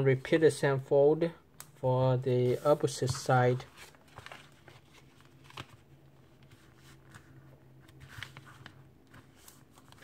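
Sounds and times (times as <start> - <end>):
paper crackles: 2.4 - 10.0
paper rustling while folded: 2.4 - 10.0.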